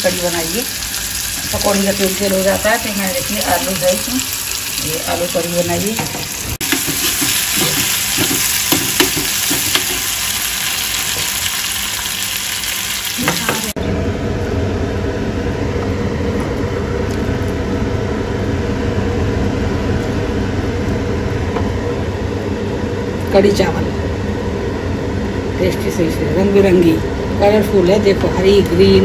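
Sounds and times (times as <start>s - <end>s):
vegetables sizzling in hot oil: 0.0s - 13.8s
metal spoon stirring in pan: 6.1s - 10.2s
steady low hum: 13.6s - 29.0s.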